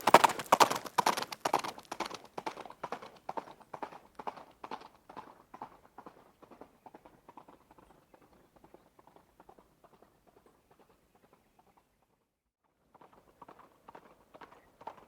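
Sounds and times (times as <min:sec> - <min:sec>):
horse hoofbeats running: 0:00.0 - 0:12.2, 0:12.8 - 0:15.0.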